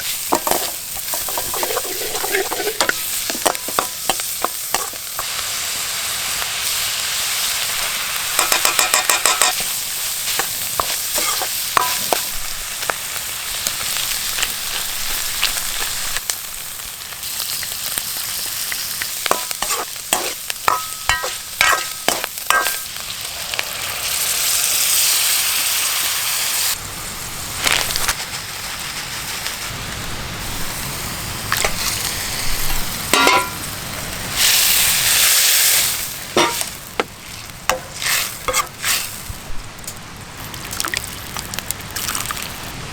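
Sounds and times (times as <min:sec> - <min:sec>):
utensil scraping a pan: 0:00.0 - 0:05.4, 0:08.4 - 0:12.4, 0:19.3 - 0:22.8, 0:33.2 - 0:33.6, 0:36.3 - 0:39.3
food sizzling in a pan: 0:00.0 - 0:42.9.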